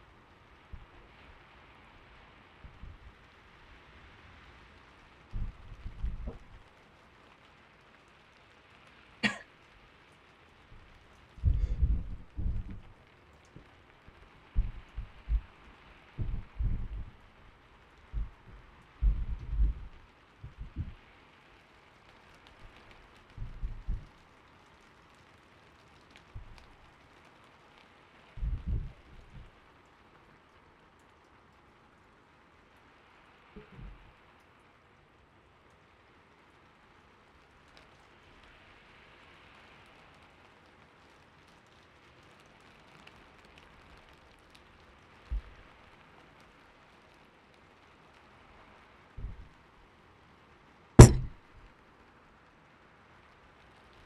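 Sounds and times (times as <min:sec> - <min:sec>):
gentle rain: 0:00.0 - 0:54.0
soft low thumps: 0:02.6 - 0:03.1, 0:05.3 - 0:06.6, 0:10.8 - 0:13.8, 0:14.5 - 0:17.4, 0:18.0 - 0:21.0, 0:23.4 - 0:24.2, 0:26.4 - 0:26.7, 0:28.4 - 0:29.5, 0:33.6 - 0:34.0, 0:45.3 - 0:45.6, 0:49.2 - 0:49.6, 0:51.0 - 0:51.6
faint ticks: 0:04.7 - 0:31.7, 0:37.0 - 0:49.6.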